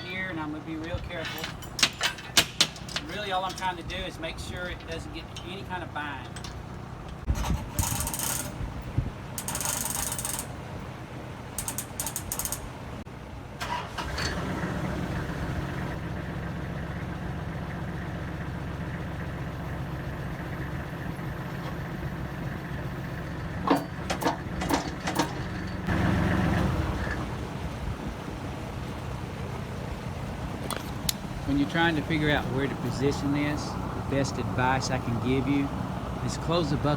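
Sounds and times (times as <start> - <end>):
hydraulics moving bucket: 0.0 - 8.6, 21.4 - 36.9
metal chain clinking and rattling: 0.0 - 8.6, 9.4 - 10.6, 23.4 - 25.9
tractor diesel engine running: 0.0 - 36.9
sharp metal clanks: 0.8 - 8.6.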